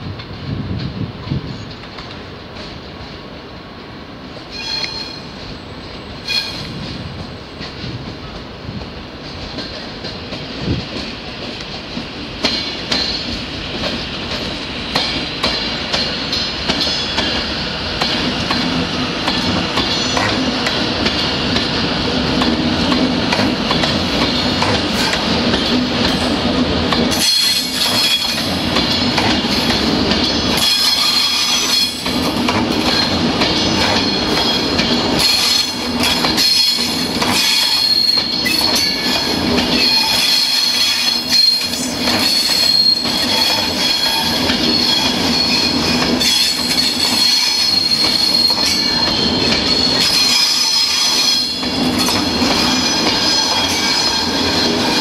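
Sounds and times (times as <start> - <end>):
train wheels squealing and clicking: 1.2 - 3.2, 4.4 - 55.0.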